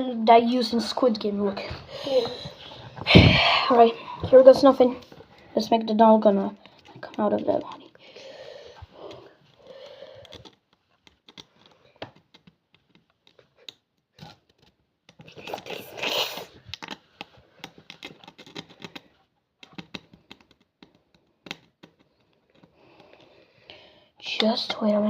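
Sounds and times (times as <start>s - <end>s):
needle scraping sugar candy: 15.3s - 16.9s.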